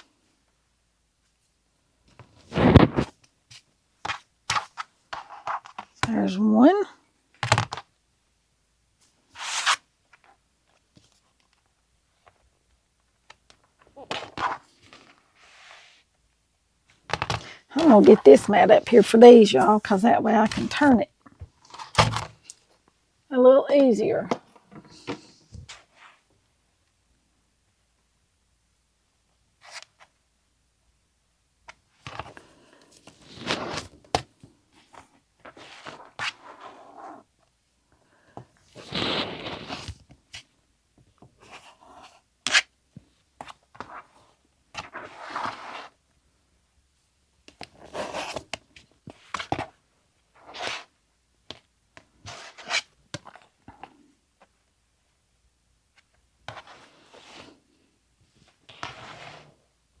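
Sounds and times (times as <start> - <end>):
fabric rustling and scraping: 2.3 - 3.2, 56.5 - 57.7, 58.3 - 59.7.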